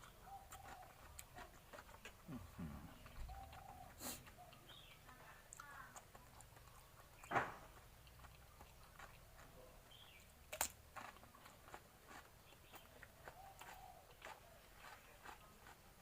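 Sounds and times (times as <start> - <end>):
person chewing food: 0.0 - 16.0
sharp crunch: 5.6 - 16.0.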